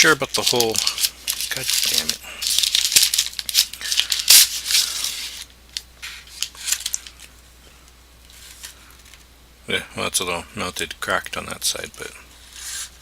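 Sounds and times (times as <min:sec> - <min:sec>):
food packaging rustling and crinkling: 0:00.0 - 0:07.3.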